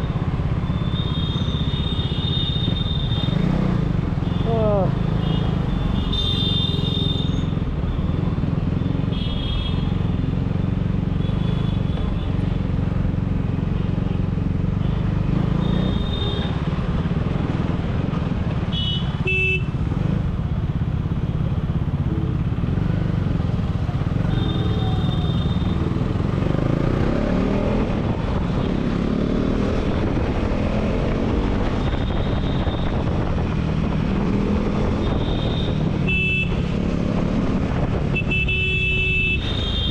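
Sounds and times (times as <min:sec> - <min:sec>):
vehicle horns honking: 0:05.2 - 0:07.4, 0:18.7 - 0:19.7, 0:35.0 - 0:36.6, 0:38.1 - 0:39.9
motorcycle engine drone: 0:19.7 - 0:39.9.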